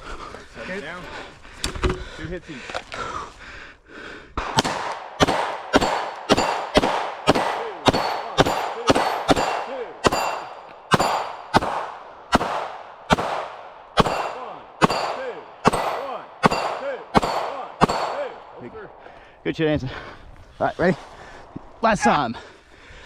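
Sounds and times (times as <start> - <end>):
gunshots: 4.4 - 18.7
metallic ringing of steel targets: 5.2 - 11.6, 14.0 - 18.4.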